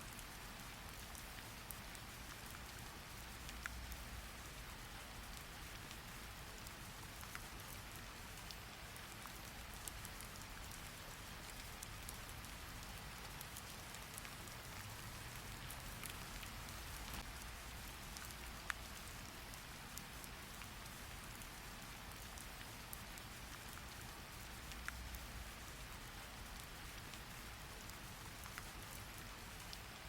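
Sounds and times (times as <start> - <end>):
steady rain hiss: 0.0 - 30.0
single raindrop ticks: 3.4 - 4.0.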